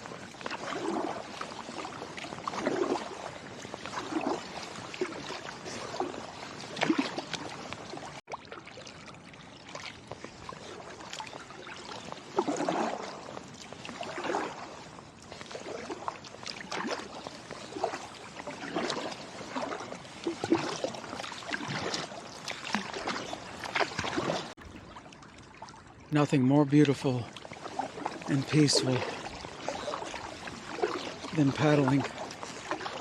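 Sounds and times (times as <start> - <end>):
kayak paddle dipping in water: 0.0 - 33.0.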